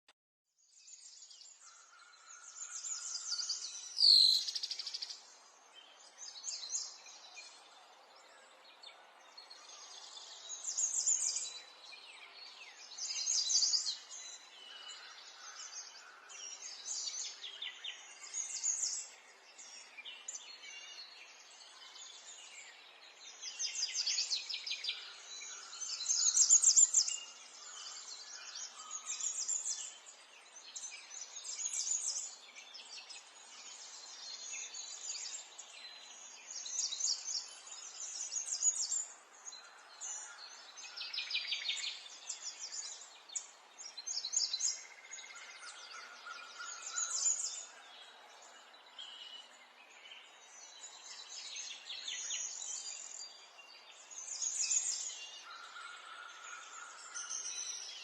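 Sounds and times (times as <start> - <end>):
songbirds chirping and trilling: 0.6 - 58.0.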